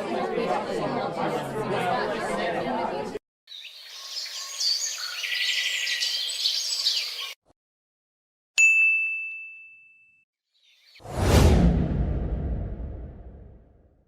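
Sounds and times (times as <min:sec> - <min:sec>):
birds chirping: 0:03.5 - 0:07.4
bright ringing ding: 0:08.6 - 0:10.2.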